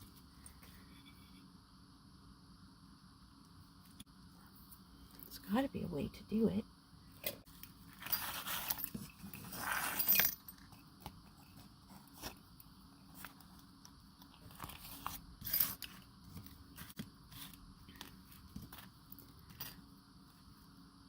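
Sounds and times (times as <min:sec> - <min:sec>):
rustling on work table: 0:07.8 - 0:13.7.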